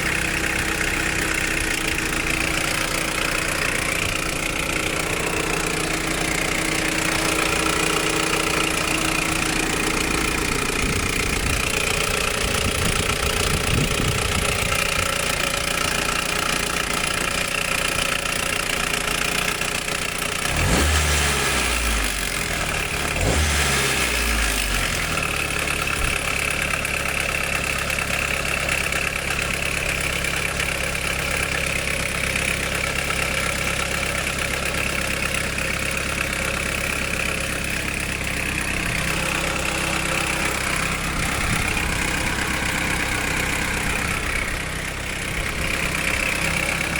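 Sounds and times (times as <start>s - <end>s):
engine revving: 0.0s - 17.2s, 20.4s - 26.2s, 36.3s - 46.9s
car engine idling: 0.0s - 46.9s.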